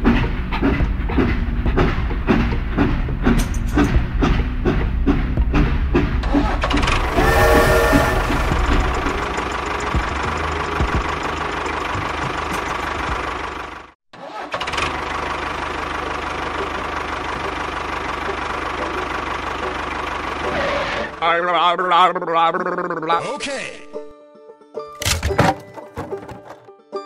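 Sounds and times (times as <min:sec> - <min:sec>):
tractor engine knocking: 0:00.0 - 0:07.0, 0:08.4 - 0:13.9, 0:15.0 - 0:20.4.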